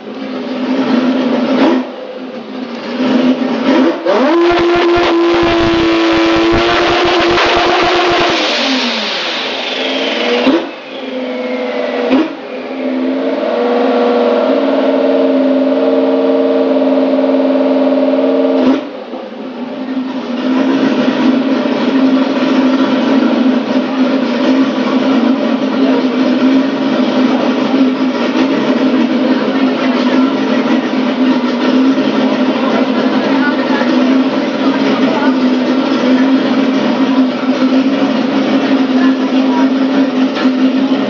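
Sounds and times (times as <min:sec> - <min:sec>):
engine revving hard: 0:00.0 - 0:19.1, 0:20.1 - 0:41.0
exhaust cracks: 0:00.0 - 0:41.0
turbo whistle: 0:04.1 - 0:16.3.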